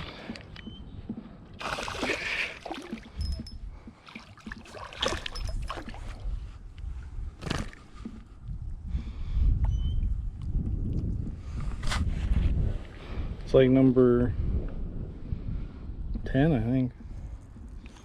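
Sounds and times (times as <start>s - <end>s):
wind rumble on microphone: 0.0s - 4.0s, 5.0s - 18.0s
water splashing and sloshing: 0.0s - 8.7s.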